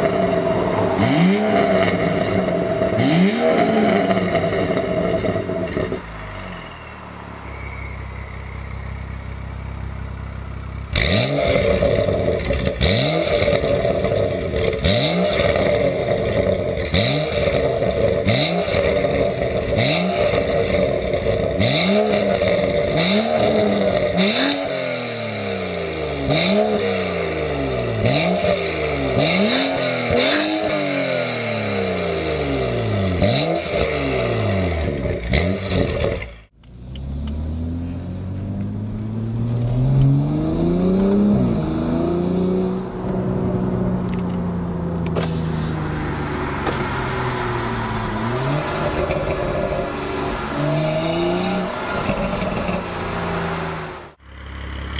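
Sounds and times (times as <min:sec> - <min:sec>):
exhaust cracks: 0:00.0 - 0:06.4, 0:07.8 - 0:25.4, 0:42.7 - 0:54.9
car exhaust revving: 0:00.0 - 0:54.9.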